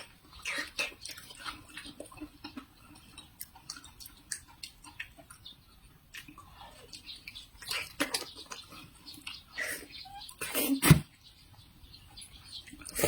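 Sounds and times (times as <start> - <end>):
chewing crisp pear: 0.0 - 11.2, 12.1 - 13.0
mouth clicks: 12.6 - 13.0.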